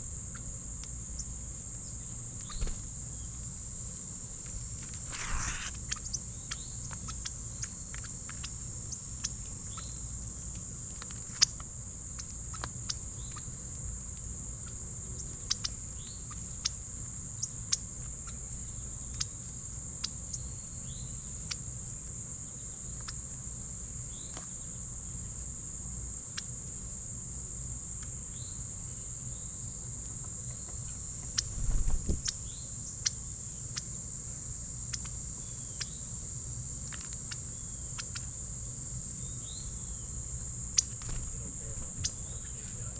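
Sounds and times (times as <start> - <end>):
crickets chirping chorus: 0.0 - 42.9
faint bird chirps: 1.2 - 3.4, 5.0 - 10.1, 39.2 - 42.9.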